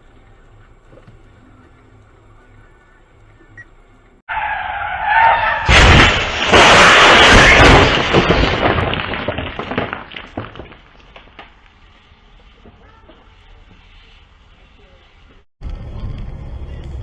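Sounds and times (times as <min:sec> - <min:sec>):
car tyres screeching: 0:00.0 - 0:07.6
car crash metal and glass: 0:04.3 - 0:11.5
debris rattling: 0:05.3 - 0:11.7.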